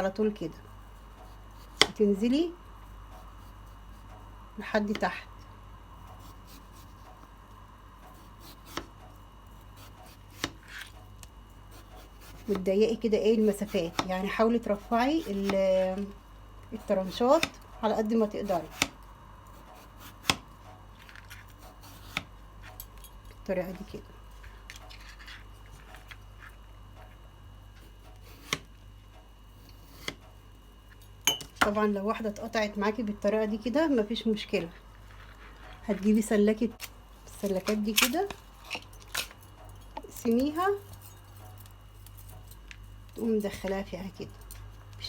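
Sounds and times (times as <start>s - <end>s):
knife slicing potato: 0.7s - 2.5s, 6.1s - 7.2s, 8.1s - 9.0s, 9.6s - 11.0s, 11.6s - 16.1s, 18.2s - 22.3s, 27.8s - 28.7s, 29.6s - 30.3s.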